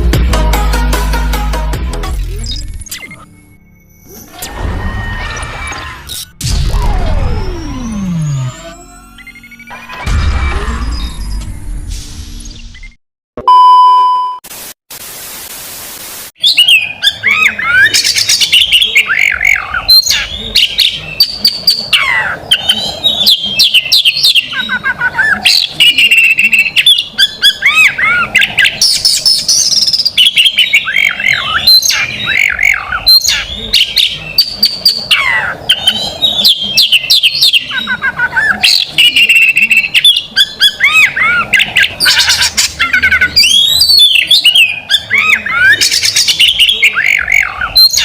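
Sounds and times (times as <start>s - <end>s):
electronic beep: 2.4s - 6.4s, 12.6s - 14.4s
other birds singing: 7.8s - 10.2s, 16.4s - 48.0s
static hiss: 14.5s - 16.4s
magpie-robin singing: 16.4s - 48.0s.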